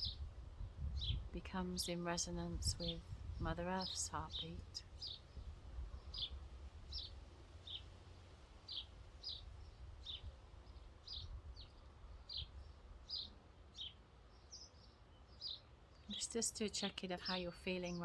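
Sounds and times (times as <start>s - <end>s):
low rumble of wind: 0.0s - 18.0s
small bird chirping: 2.6s - 7.9s, 8.7s - 16.3s.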